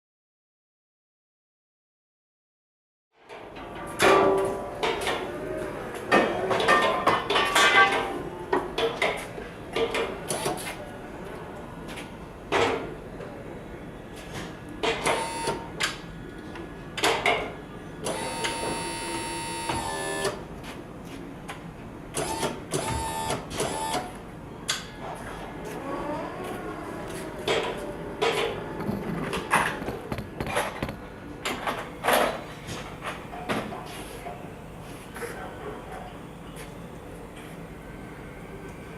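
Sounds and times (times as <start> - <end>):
electric lift motor whining: 15.0 - 15.7, 18.0 - 20.4, 22.2 - 24.1.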